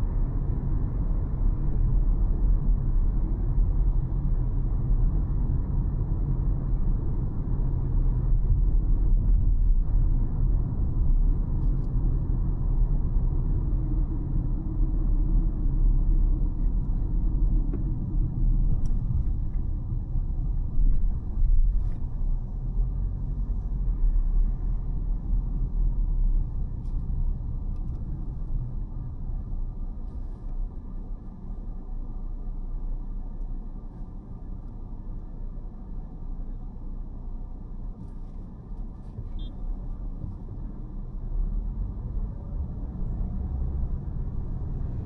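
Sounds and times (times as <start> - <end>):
car tyres and engine rumbling: 0.0 - 45.0.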